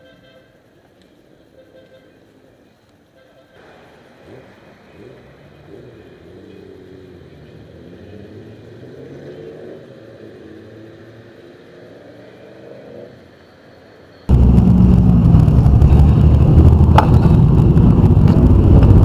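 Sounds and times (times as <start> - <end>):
vehicle engine running: 14.3 - 19.0.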